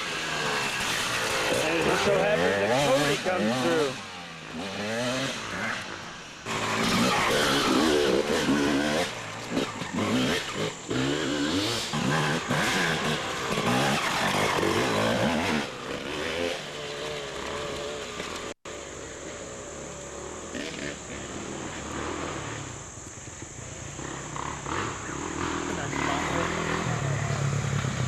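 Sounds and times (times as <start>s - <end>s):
dirt bike engine revving: 0.0s - 18.6s, 20.0s - 28.0s.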